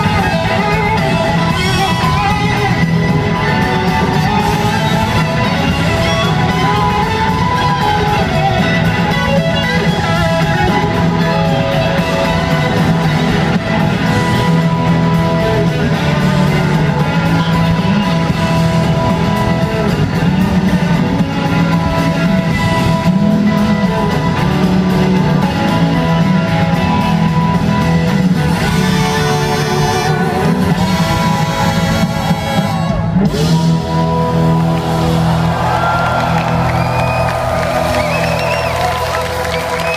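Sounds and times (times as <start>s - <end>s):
electric guitar: 0.0s - 39.9s
live blues-rock band: 0.0s - 39.9s.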